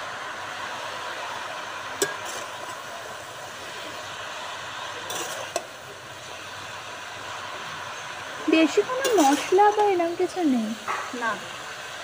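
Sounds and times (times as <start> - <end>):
vegetables frying in a pan: 0.0 - 12.0
metal spatula stirring: 2.0 - 2.8, 5.1 - 5.7, 8.8 - 10.1.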